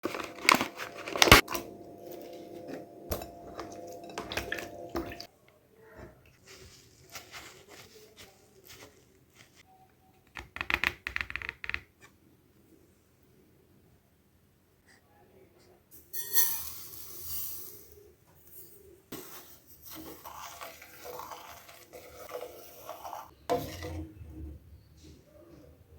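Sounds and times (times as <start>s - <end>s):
steady hum: 0.1s - 5.2s.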